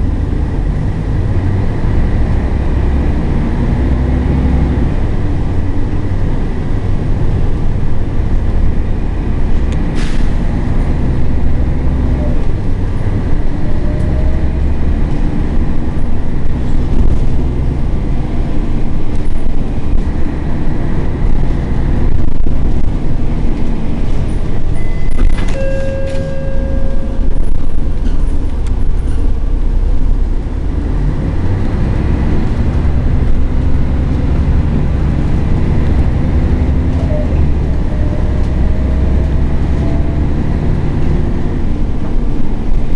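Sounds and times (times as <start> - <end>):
bus diesel engine droning: 0.0 - 42.9
brief high tones: 24.8 - 27.9.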